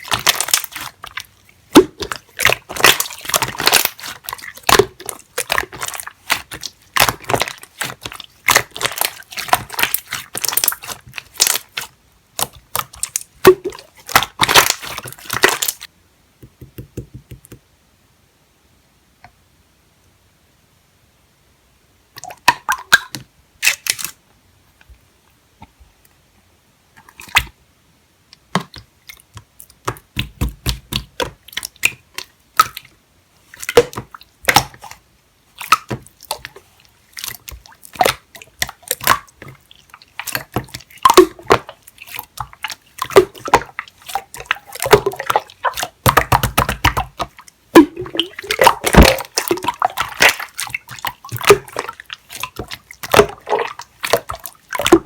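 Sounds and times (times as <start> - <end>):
slime squishing and squelching: 0.0 - 15.9, 28.4 - 55.0.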